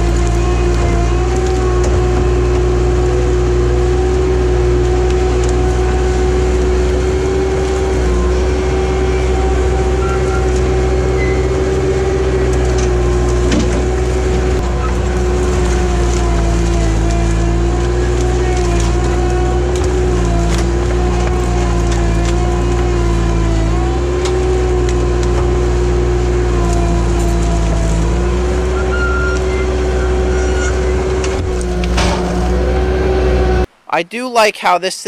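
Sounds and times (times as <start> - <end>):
skid steer engine rumbling: 0.0 - 33.8.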